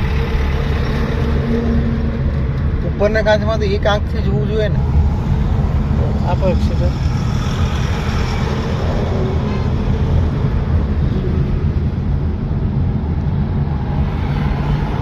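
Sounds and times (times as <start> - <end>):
car engine: 0.0 - 15.0
road rumble: 0.0 - 15.0.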